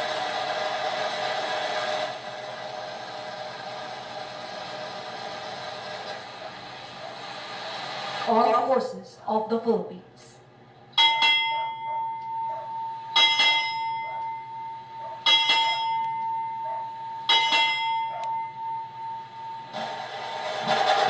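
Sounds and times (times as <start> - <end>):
ship's bell ringing: 11.0 - 19.8.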